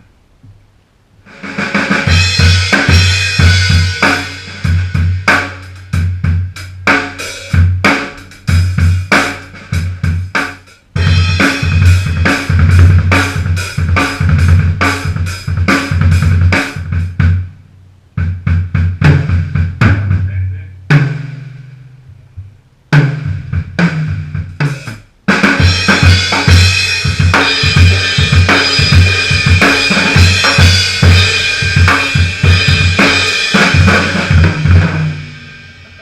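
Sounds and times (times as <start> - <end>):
cymbals and hi-hat: 1.2 - 17.4, 22.9 - 36.0
snare drum: 1.4 - 5.7, 24.6 - 35.1.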